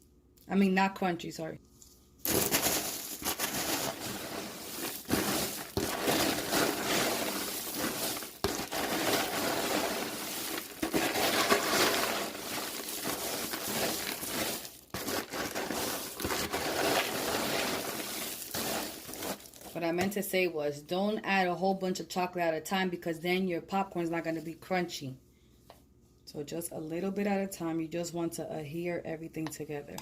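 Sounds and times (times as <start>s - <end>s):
popcorn rustling crunch: 1.7s - 19.8s.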